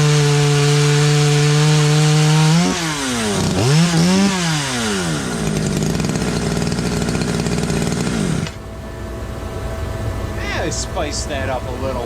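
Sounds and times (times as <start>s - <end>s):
chainsaw revving and idling: 0.0s - 8.6s.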